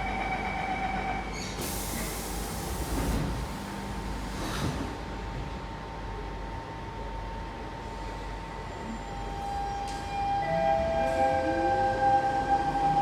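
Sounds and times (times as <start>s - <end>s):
train humming: 8.8s - 13.0s.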